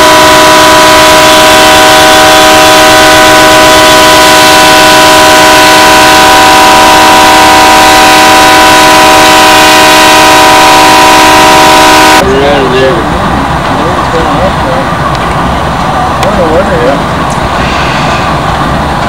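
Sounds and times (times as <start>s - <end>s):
locomotive air horn blowing: 0.0s - 12.7s.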